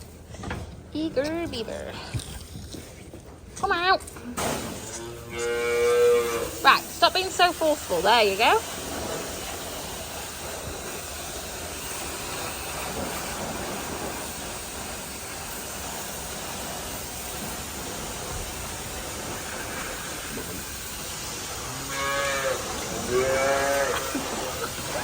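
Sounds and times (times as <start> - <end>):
cattle mooing: 5.0 - 6.6, 21.6 - 24.7.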